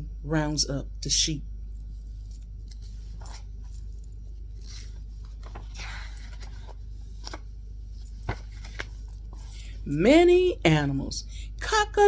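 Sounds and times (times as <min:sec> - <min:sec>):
steady low hum: 0:00.0 - 0:12.0
faint rustles and clicks: 0:01.7 - 0:10.0.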